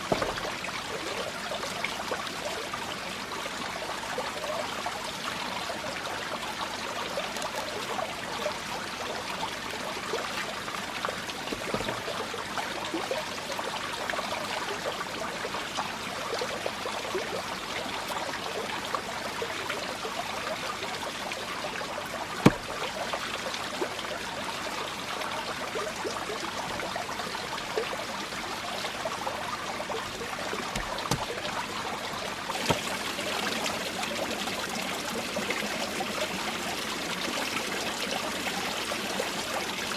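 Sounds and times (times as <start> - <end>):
flowing water trickling: 0.0 - 39.9
sharp knock: 22.4 - 22.7
faint taps: 30.8 - 31.3.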